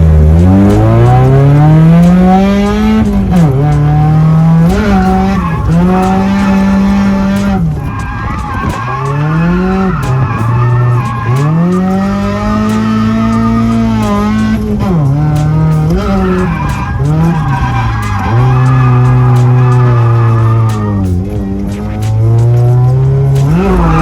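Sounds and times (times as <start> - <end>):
car engine revving hard: 0.0 - 24.0
tyres skidding and squealing: 0.0 - 24.0.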